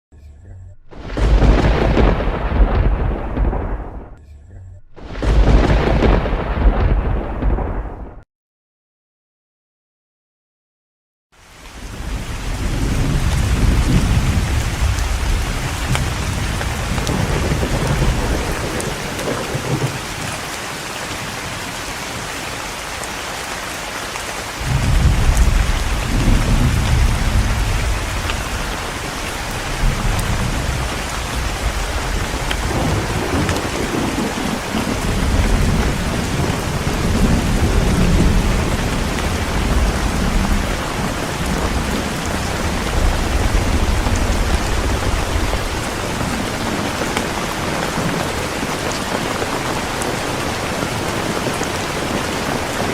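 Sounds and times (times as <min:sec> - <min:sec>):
thunder rumbling: 0:00.7 - 0:04.2, 0:04.8 - 0:08.2, 0:11.7 - 0:52.9
heavy rain hissing: 0:00.9 - 0:03.9, 0:11.4 - 0:52.9.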